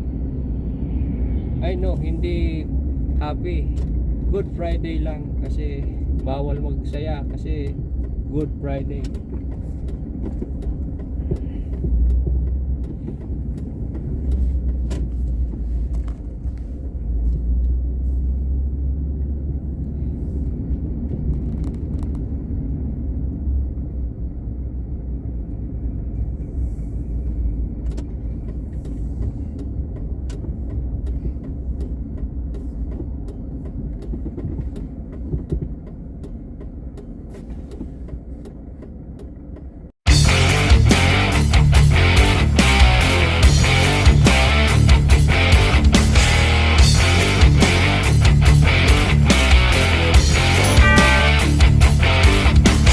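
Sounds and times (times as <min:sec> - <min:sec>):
car driving rumble: 0:00.0 - 0:52.9
guitar music: 0:40.1 - 0:52.9.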